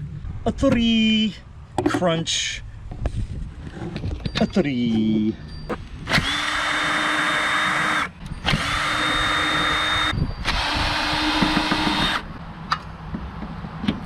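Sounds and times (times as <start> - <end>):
cordless drill motor whine: 6.0 - 12.3.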